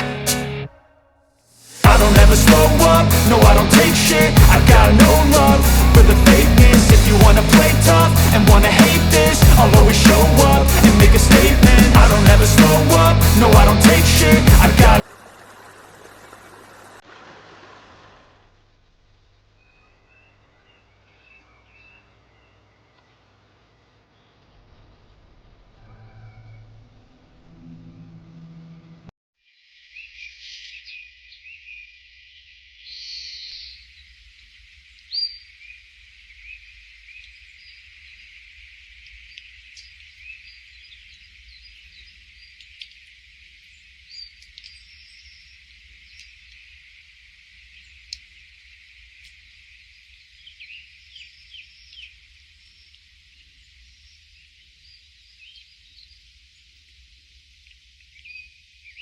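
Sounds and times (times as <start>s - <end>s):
steady hiss: 1.6s - 15.0s
birds chirping: 1.9s - 15.0s.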